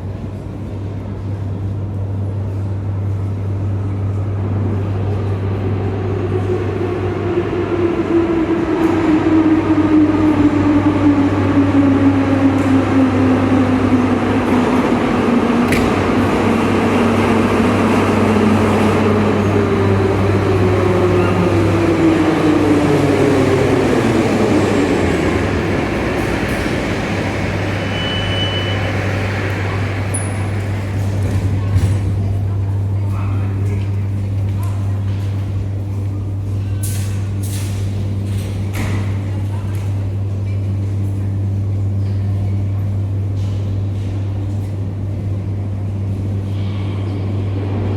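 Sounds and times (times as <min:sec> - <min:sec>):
metro train motor whine: 0:01.6 - 0:33.0
short high beep: 0:27.9 - 0:29.0.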